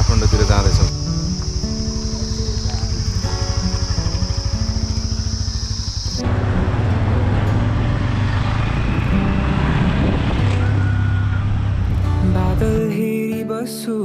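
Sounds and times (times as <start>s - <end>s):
motorcycle engine rumble: 0.0s - 12.8s
wind noise on microphone: 8.5s - 12.8s.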